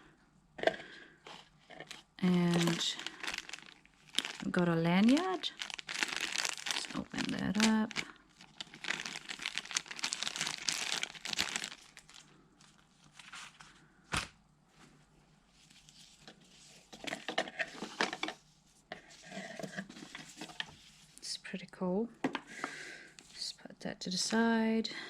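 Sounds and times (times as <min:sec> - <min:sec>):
packaging crinkling and tearing: 0:01.8 - 0:13.6.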